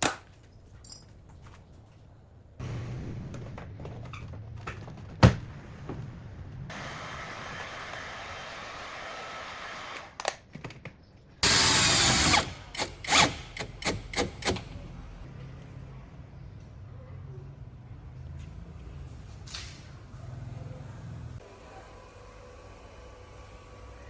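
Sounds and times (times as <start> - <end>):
power drill running in bursts: 11.4 - 14.6.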